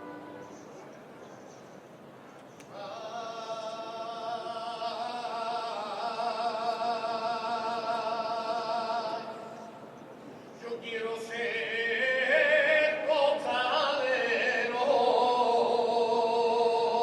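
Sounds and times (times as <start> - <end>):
band sustained chord with vibrato: 0.0 - 1.0.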